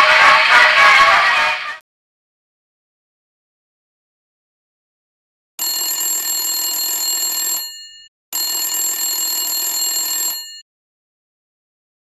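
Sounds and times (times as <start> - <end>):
telephone bell ringing: 5.6 - 10.7.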